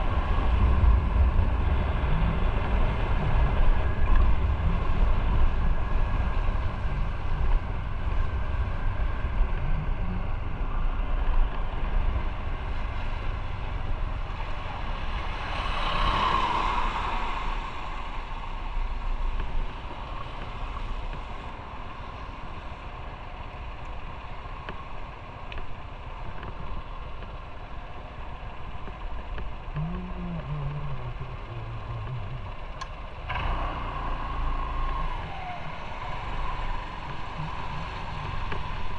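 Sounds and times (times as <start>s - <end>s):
motorcycle engine running: 25.9s - 38.9s.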